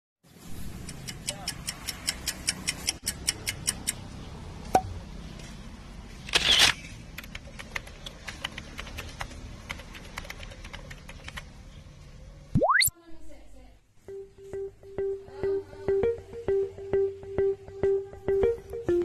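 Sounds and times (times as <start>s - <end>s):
quick mechanical ticks: 0.7s - 4.0s
faint irregular clicks: 0.8s - 4.0s.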